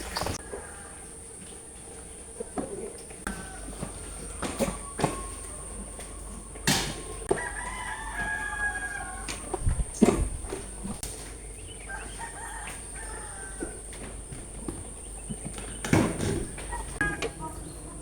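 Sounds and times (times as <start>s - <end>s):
rooster crowing: 0.2s - 9.6s, 11.8s - 14.0s.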